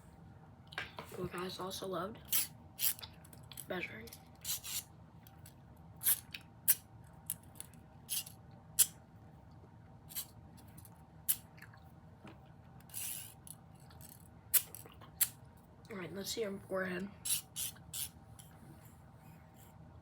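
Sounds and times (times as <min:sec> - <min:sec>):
tape measure sliding hiss: 0:04.4 - 0:04.9, 0:12.9 - 0:15.3, 0:17.2 - 0:18.5
tape measure clicks: 0:17.3 - 0:18.5.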